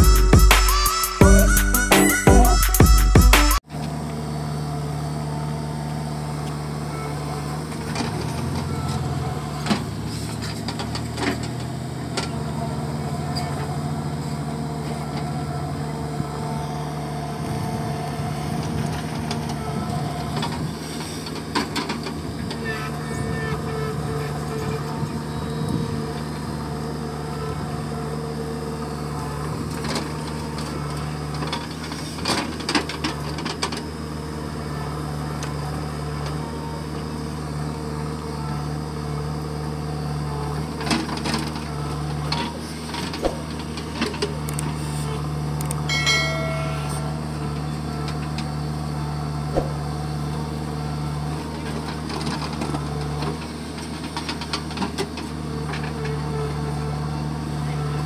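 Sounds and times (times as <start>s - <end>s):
brief high tone: 0.0s - 3.6s, 45.9s - 48.1s
diesel engine running: 0.0s - 58.0s.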